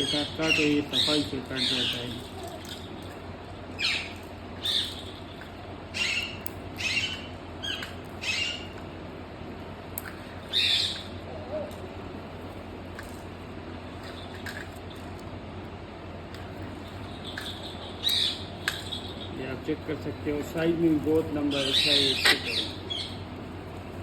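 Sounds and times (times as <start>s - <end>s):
parrot squawking harshly: 6.0s - 8.7s, 10.5s - 11.1s, 21.6s - 23.2s.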